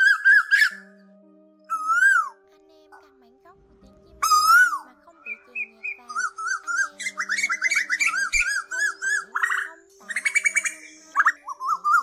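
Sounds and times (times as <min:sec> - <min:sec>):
bird calling: 0:00.0 - 0:01.0, 0:01.7 - 0:02.4, 0:04.2 - 0:12.0.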